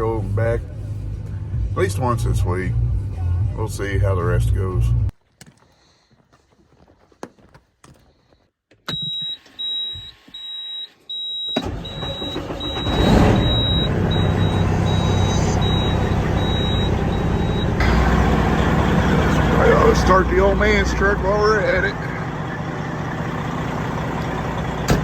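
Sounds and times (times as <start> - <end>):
diesel truck engine starting: 0.0 - 5.2, 8.9 - 25.0
cab warning beeps: 8.9 - 18.0.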